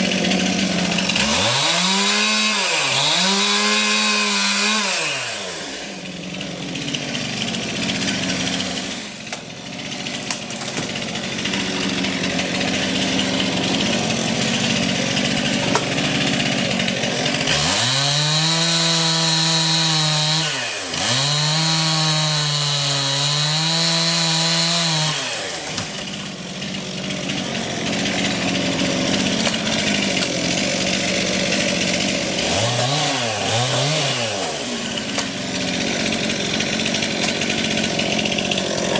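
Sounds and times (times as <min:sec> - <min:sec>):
chainsaw running and revving: 0:00.0 - 0:38.9.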